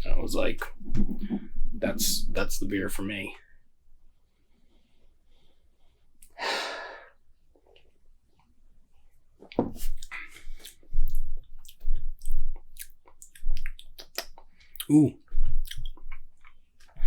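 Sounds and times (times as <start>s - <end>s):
person sipping: 9.8s - 16.2s
mouth sounds: 9.9s - 16.2s
person gulping: 14.8s - 16.3s.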